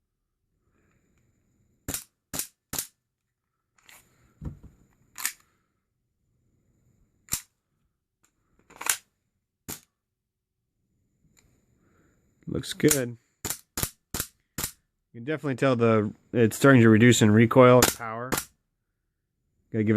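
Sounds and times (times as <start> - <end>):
dull knock: 4.4 - 4.8.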